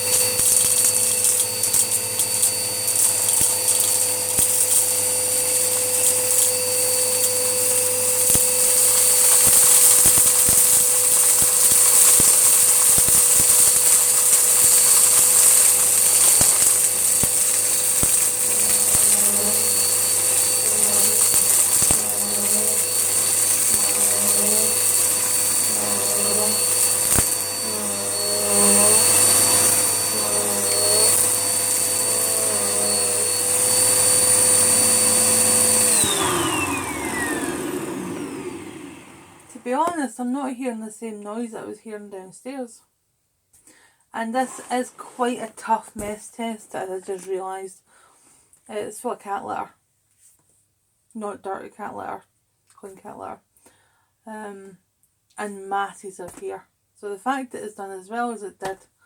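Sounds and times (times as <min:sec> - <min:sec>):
grit rattling in vacuum: 0:00.0 - 0:39.8
upright vacuum cleaner running: 0:00.0 - 0:39.9.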